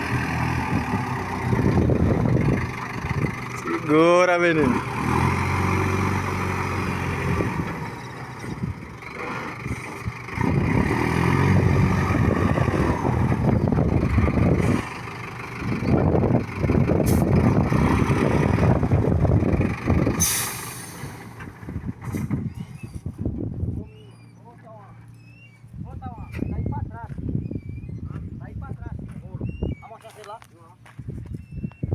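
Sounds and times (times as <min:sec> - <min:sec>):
truck engine labouring: 0:00.0 - 0:28.0
short sharp hiss: 0:20.2 - 0:21.2.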